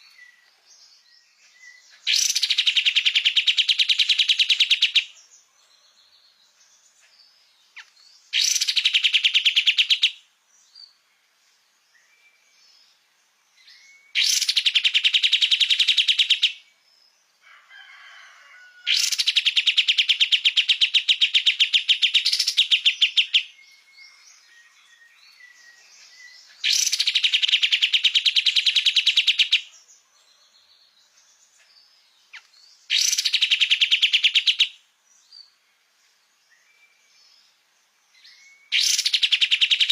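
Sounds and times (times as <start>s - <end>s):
bird singing loud fast trills: 0.0s - 5.4s, 6.8s - 11.0s, 13.6s - 17.1s, 18.9s - 30.0s, 31.8s - 35.7s, 36.4s - 39.9s.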